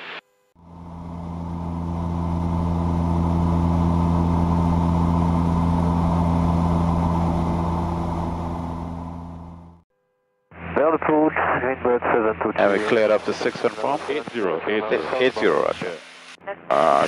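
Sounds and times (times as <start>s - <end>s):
turboprop engines droning: 0.6s - 9.8s, 10.6s - 17.0s.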